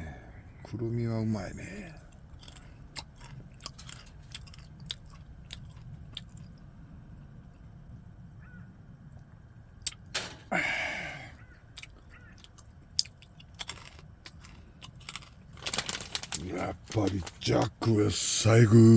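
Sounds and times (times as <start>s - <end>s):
chewing crunchy nuts: 1.7s - 7.8s, 11.4s - 18.4s
breathy sound: 10.4s - 11.4s.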